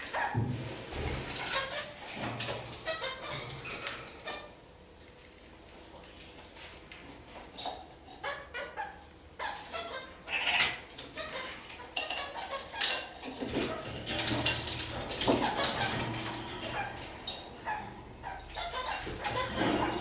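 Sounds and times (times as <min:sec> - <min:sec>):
parakeets chattering: 0:01.0 - 0:04.6, 0:07.7 - 0:20.0.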